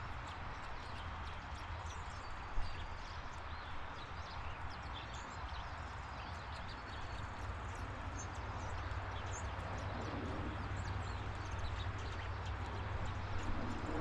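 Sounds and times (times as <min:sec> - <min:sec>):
small birds chirping: 0:00.0 - 0:14.0
outdoor background rumble: 0:06.9 - 0:14.0.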